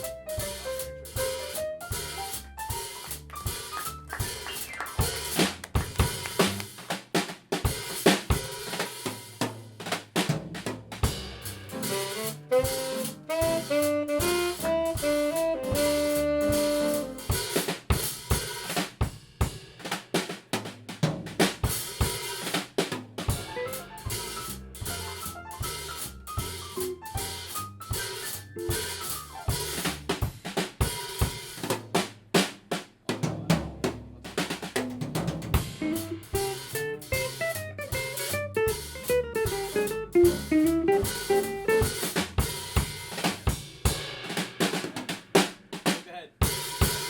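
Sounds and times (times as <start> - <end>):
jazz drum kit playing: 0.0 - 47.0
melodic phrase from band instrument: 11.8 - 17.2, 23.3 - 25.2, 35.8 - 42.2.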